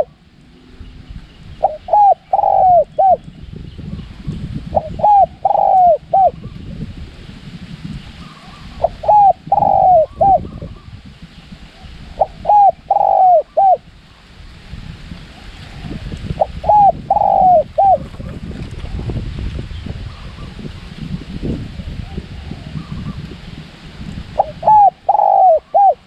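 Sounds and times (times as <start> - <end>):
wind rumble on microphone: 0.0 - 26.0
dove cooing: 1.6 - 3.2, 4.7 - 6.5, 8.3 - 10.8, 12.1 - 13.8, 15.8 - 18.3, 24.4 - 26.0.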